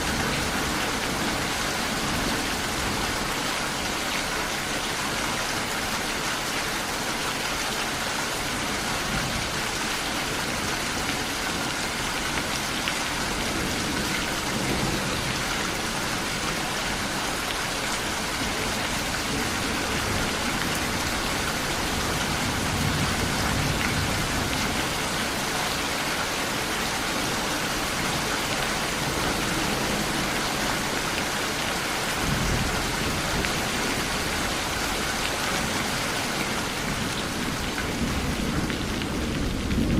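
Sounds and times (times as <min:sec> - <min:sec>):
heavy rain falling: 0:00.0 - 0:39.9
thunder rumbling: 0:36.6 - 0:39.9.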